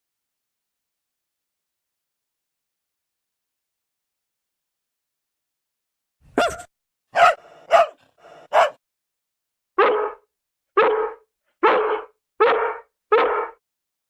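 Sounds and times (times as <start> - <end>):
dog barking: 6.3 - 8.8, 9.8 - 13.6.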